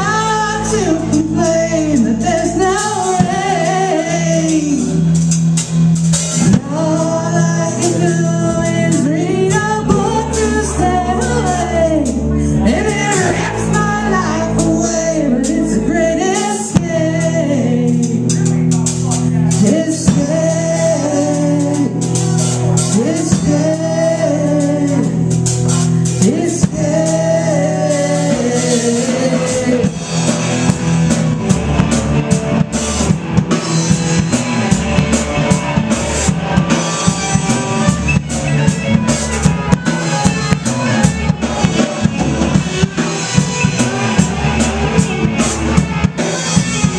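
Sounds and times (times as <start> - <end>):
woman singing: 0.0 - 5.0, 6.4 - 18.3, 19.6 - 22.1, 22.9 - 25.3, 26.2 - 30.0
band playing a song: 0.0 - 46.9.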